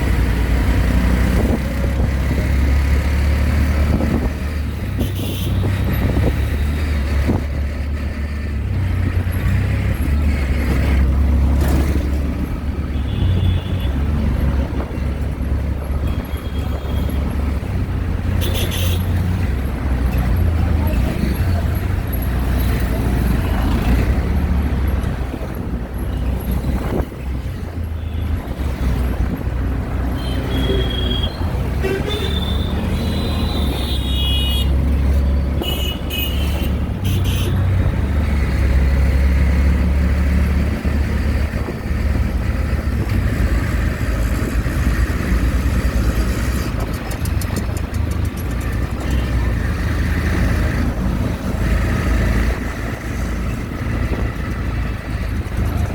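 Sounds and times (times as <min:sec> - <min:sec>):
engine and road rumble: 0:00.0 - 0:55.9
horns honking: 0:18.4 - 0:19.1, 0:30.2 - 0:35.0, 0:35.6 - 0:37.7.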